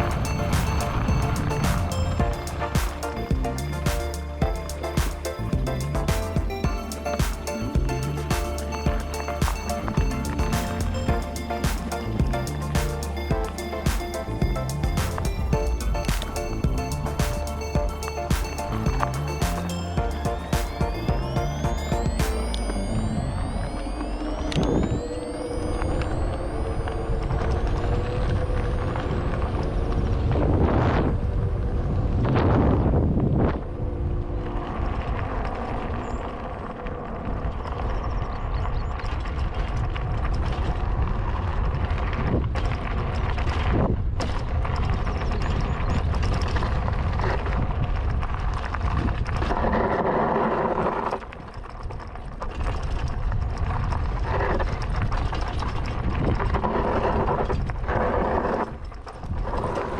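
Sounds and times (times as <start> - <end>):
road noise: 0.0 - 37.6
wind rumbling on microphone: 20.3 - 59.9.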